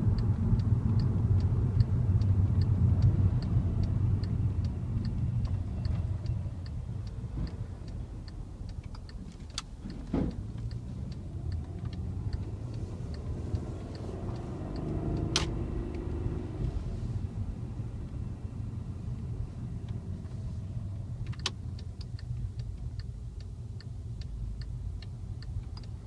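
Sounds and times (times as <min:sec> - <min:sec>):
indicator ticking: 0:00.0 - 0:16.7
car engine drone: 0:00.0 - 0:26.0
sharp clicks: 0:00.2 - 0:16.7, 0:19.8 - 0:26.0.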